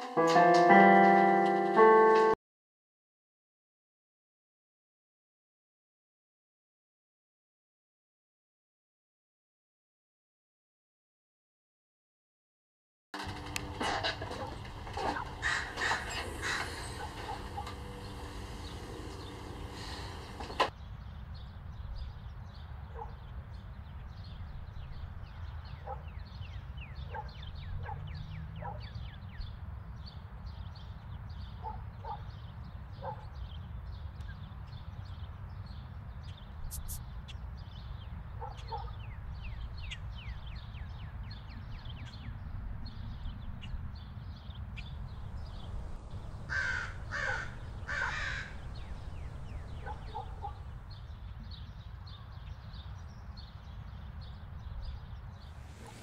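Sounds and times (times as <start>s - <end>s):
harsh bird caws: 15.1s - 17.7s, 46.2s - 50.6s
high bird chirping: 36.7s - 37.5s, 44.8s - 51.6s
low rumble: 44.9s - 51.2s.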